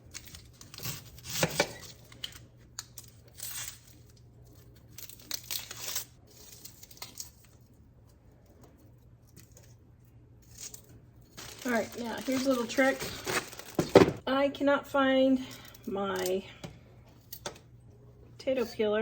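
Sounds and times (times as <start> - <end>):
onion skin crackling as peeled: 0.0 - 13.9.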